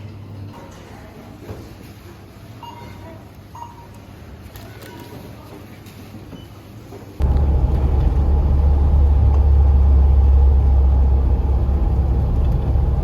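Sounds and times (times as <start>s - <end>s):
van engine and road noise: 7.2s - 13.0s.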